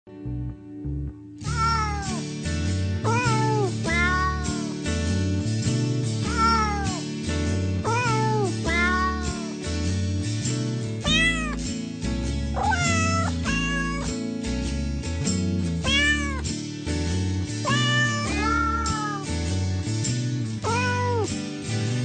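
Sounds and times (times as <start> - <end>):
background music with bass: 0.1 - 22.0
cat meowing: 1.4 - 2.2, 3.0 - 4.8, 6.2 - 7.0, 7.8 - 9.5, 11.0 - 11.6, 12.6 - 14.2, 15.8 - 16.4, 17.7 - 19.3, 20.6 - 21.3.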